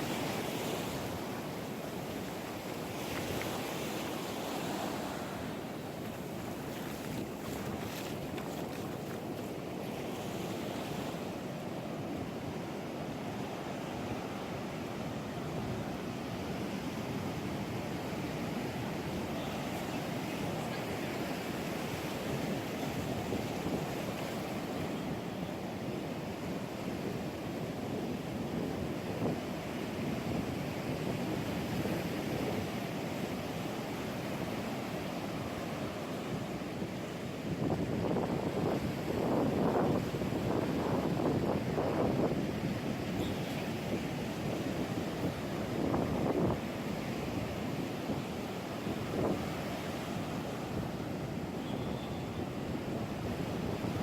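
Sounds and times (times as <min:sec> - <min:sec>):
ocean surf breaking: 0:00.0 - 0:11.4
ocean surf washing on shore: 0:00.0 - 0:54.0
wind on microphone: 0:36.2 - 0:54.0.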